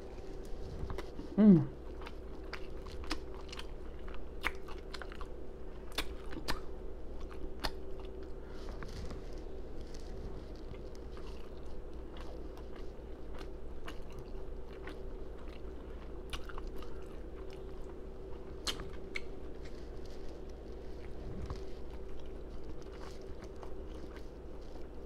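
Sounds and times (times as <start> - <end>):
open-mouthed chewing and lip smacking: 0.2 - 25.0.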